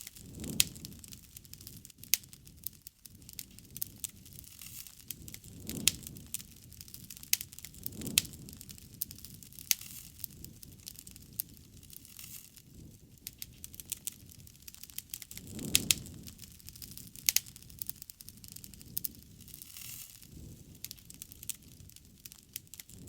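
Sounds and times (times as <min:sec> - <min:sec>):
low rush of flame: 0:00.0 - 0:23.0
wood fire crackling and popping: 0:00.0 - 0:23.0.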